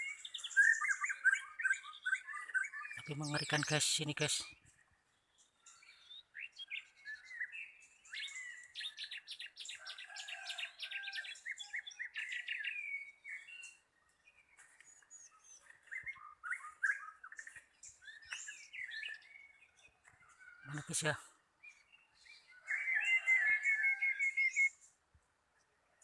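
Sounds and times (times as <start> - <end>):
songbirds chirping and whistling: 0.0 - 26.0.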